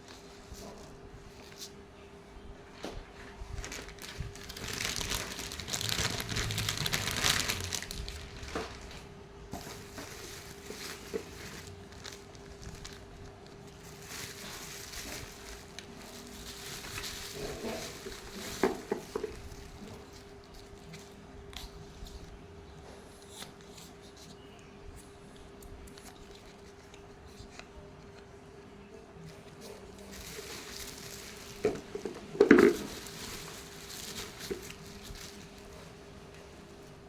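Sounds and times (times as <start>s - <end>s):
packaging crinkling and rustling: 2.8s - 22.4s, 29.2s - 36.8s.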